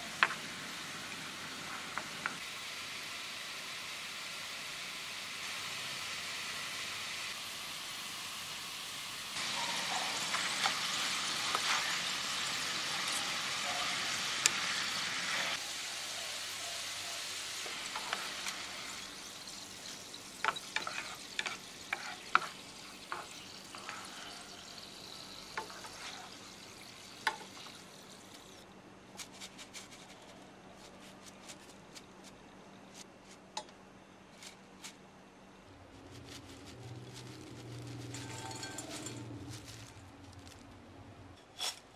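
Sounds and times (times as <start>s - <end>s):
potatoes sizzling in oil: 0.0s - 28.6s, 36.1s - 40.6s.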